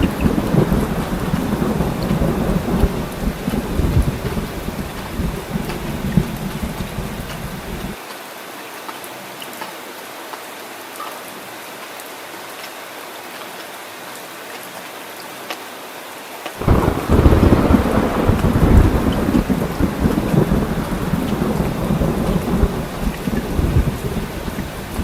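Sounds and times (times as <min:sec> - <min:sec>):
heavy rain hissing: 0:00.0 - 0:08.0, 0:16.6 - 0:25.0
low thunder rumble: 0:00.0 - 0:08.0, 0:16.6 - 0:25.0.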